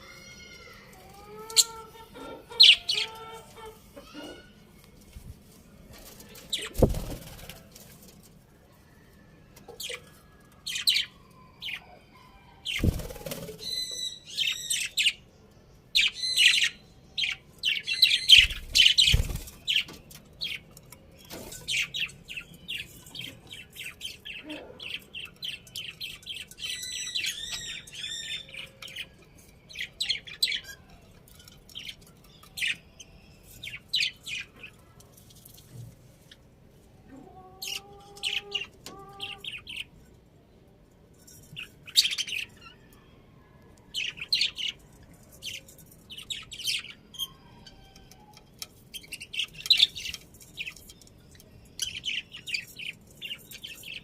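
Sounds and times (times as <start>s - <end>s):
budgerigars chirping: 1.6s - 3.2s.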